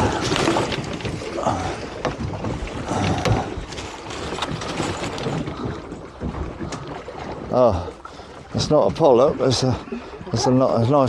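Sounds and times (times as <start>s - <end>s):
gear clicks and knocks: 0.0s - 7.6s
water washing against boat hull: 0.0s - 11.0s.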